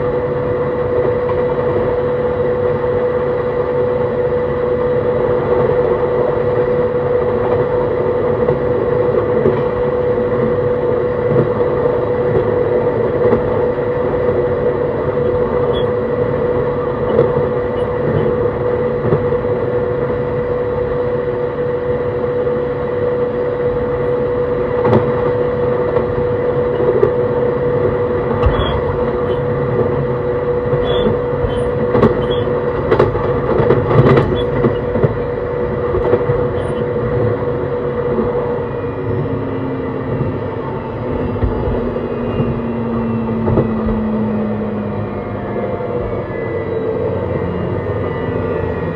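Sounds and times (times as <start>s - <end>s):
train motor hum: 0.0s - 48.9s
train wheels rolling on rails: 4.2s - 20.9s, 23.2s - 45.2s.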